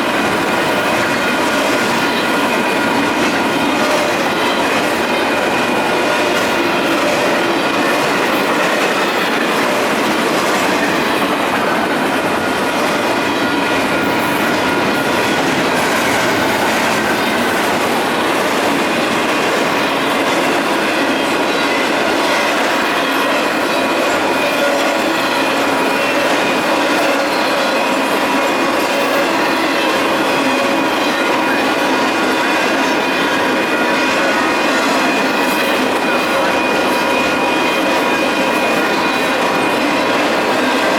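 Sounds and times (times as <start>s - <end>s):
train wheels clattering over rail joints: 0.0s - 40.9s.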